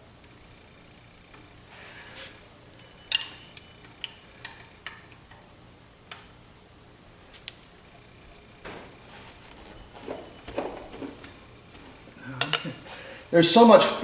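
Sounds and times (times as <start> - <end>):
soft scrape: 1.7 - 2.4, 8.7 - 12.0
wrench clinking on metal: 3.1 - 5.4.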